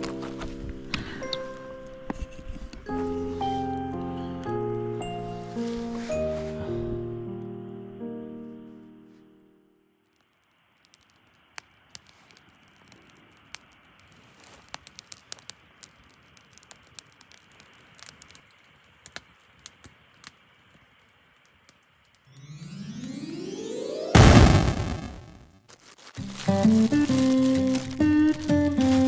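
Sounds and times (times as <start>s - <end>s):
faint small clicks and crackles: 10.0s - 22.4s, 25.7s - 29.0s
low hiss: 15.2s - 25.5s.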